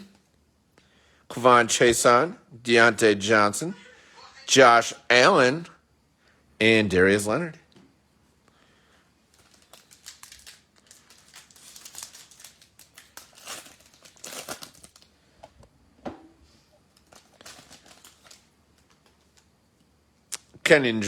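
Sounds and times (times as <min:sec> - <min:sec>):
plastic wrapper crinkling: 0:09.3 - 0:15.2, 0:16.9 - 0:19.6.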